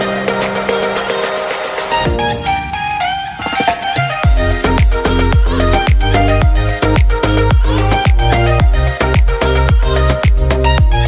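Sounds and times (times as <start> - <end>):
dance music with kick drum: 3.5 - 11.0.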